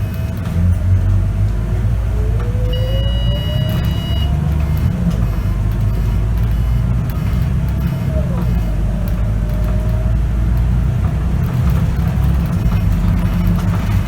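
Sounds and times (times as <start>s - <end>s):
bus engine rumbling and whining: 0.0s - 14.0s
steady high beep: 2.7s - 8.8s.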